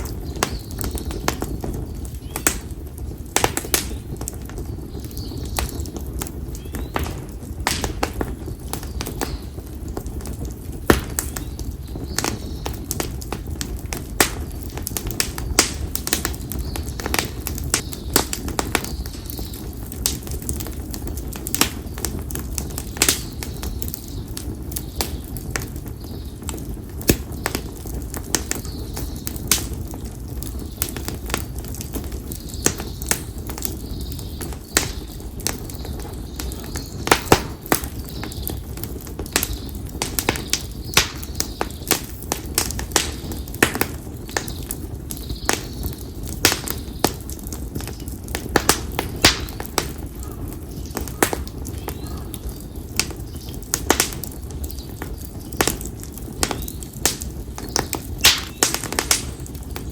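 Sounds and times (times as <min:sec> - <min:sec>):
campfire crackling and popping: 0:00.0 - 0:59.9
low rumble of burning: 0:00.0 - 0:59.9
faint bird calls: 0:33.7 - 0:38.6, 0:49.3 - 0:53.6.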